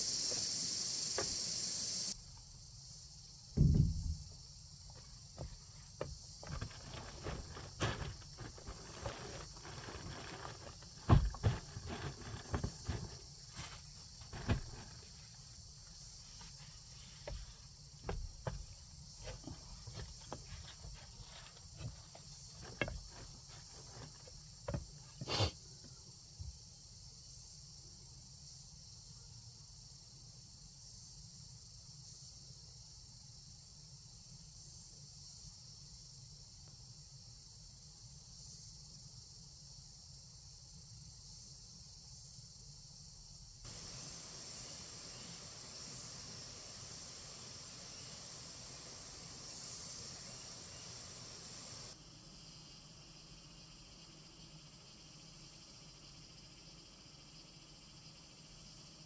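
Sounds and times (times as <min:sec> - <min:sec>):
insects chirring: 0:00.0 - 0:59.0
short knocks: 0:03.6 - 0:04.5.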